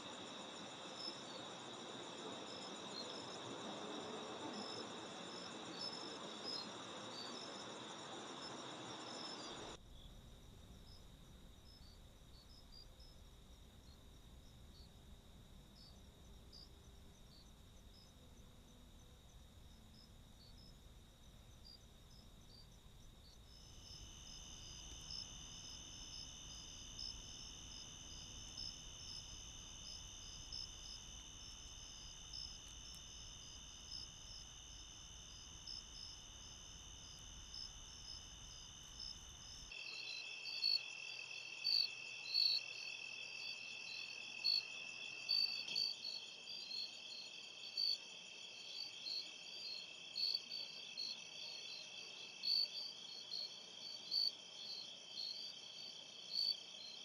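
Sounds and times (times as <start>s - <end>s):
crickets and insects chirping: 0.0s - 57.0s.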